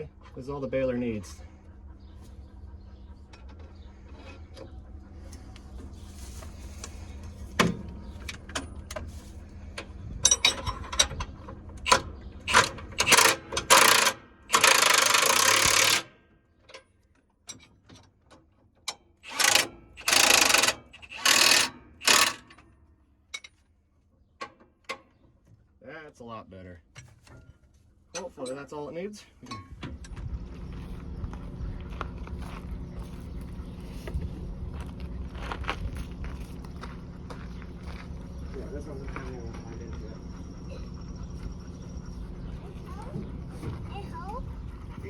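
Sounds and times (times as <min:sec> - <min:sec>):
low steady hum: 0:26.9 - 0:45.0.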